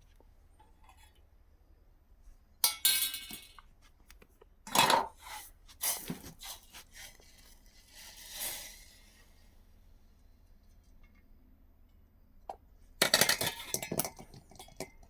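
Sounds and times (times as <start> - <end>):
dishes clattering: 4.7 - 5.2, 13.0 - 15.0.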